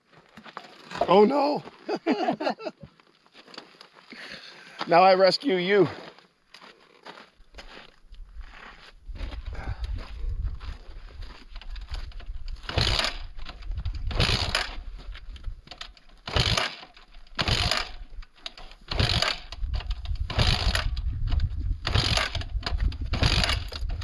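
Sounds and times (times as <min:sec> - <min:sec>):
low rumble: 0:08.3 - 0:15.6
motorcycle engine cranking: 0:12.2 - 0:24.0.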